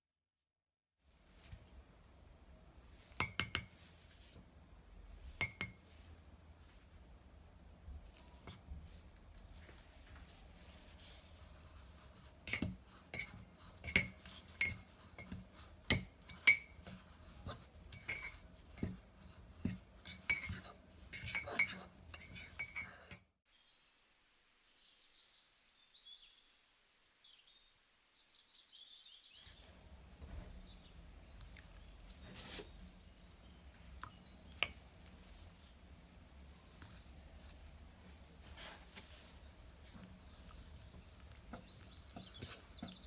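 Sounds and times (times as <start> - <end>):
metal spoon clinking against mug: 12.4 - 23.2, 40.3 - 43.0.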